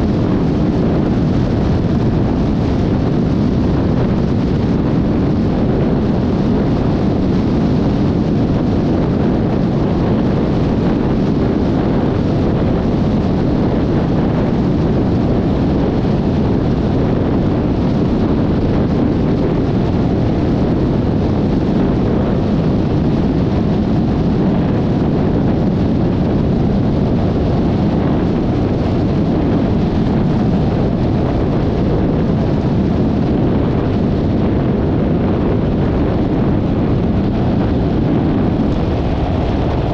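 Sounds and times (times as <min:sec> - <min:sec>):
wind rush: 0:00.0 - 0:39.9
road noise: 0:35.8 - 0:39.9.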